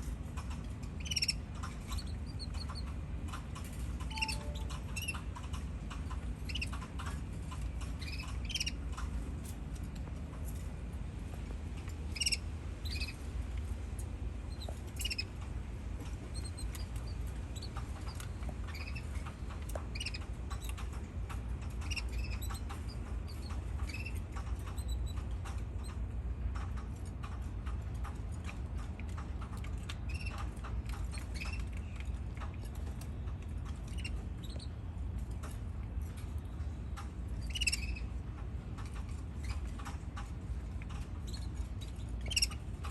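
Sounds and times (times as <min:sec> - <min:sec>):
small clicks and pattering: 0:00.0 - 0:42.9
steady low hum: 0:00.0 - 0:42.9
canaries chirping: 0:01.0 - 0:02.8, 0:04.1 - 0:05.2, 0:08.0 - 0:08.8, 0:14.6 - 0:15.3, 0:37.4 - 0:38.1, 0:41.3 - 0:42.6.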